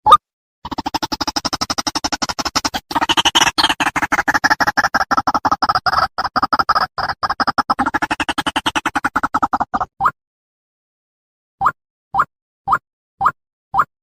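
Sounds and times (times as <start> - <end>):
waterhen croaking calls: 2.4 - 9.9.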